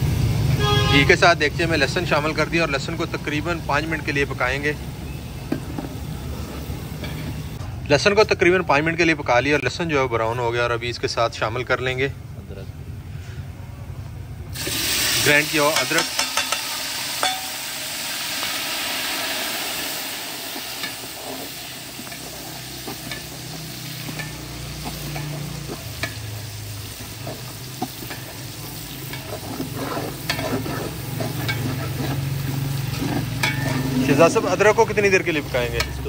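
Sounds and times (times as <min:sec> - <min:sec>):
spices sizzling in hot fat: 0:00.0 - 0:07.6, 0:14.5 - 0:36.0
metal spatula scraping a pot: 0:19.5 - 0:36.0.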